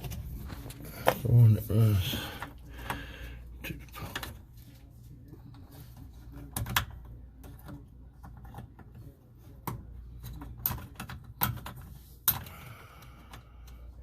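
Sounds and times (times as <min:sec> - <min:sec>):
clicks and knocks of handled parts: 0:05.5 - 0:13.8.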